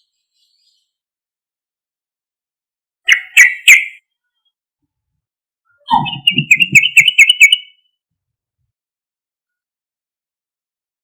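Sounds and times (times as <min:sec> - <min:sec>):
bulbul chattering song: 0:03.1 - 0:04.1, 0:05.8 - 0:07.9.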